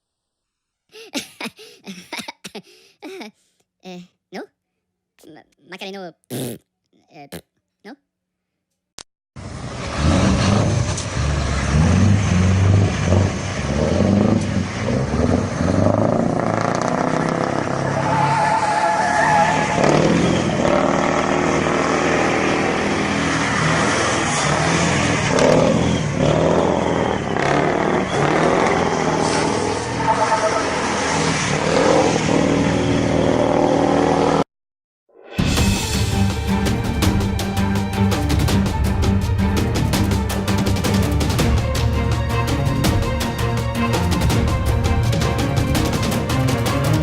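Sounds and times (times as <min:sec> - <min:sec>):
diesel truck engine revving: 0:09.4 - 0:34.4
tyre and road noise: 0:09.4 - 0:34.4.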